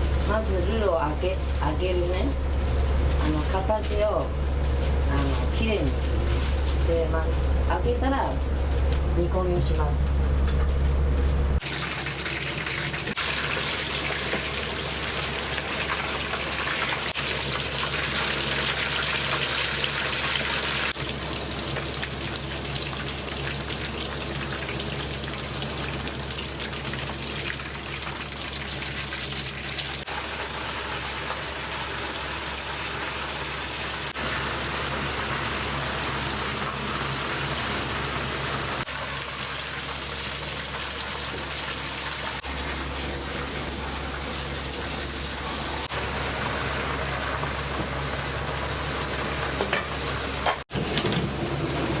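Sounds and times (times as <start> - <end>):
food sizzling in hot oil: 0.0 - 9.2, 10.2 - 50.6
steady low hum: 0.0 - 11.6.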